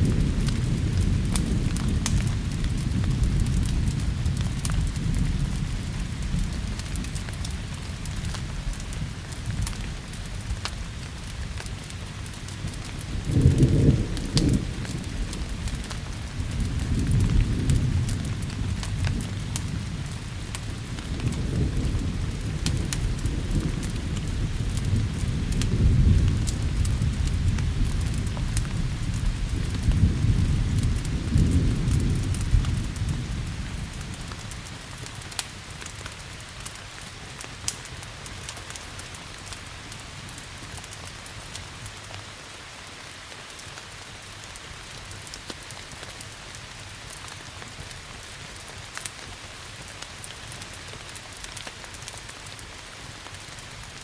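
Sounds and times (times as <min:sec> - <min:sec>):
thunder rumbling: 0:00.0 - 0:35.7
sharp crackles: 0:00.0 - 0:54.0
steady rain: 0:00.0 - 0:54.0.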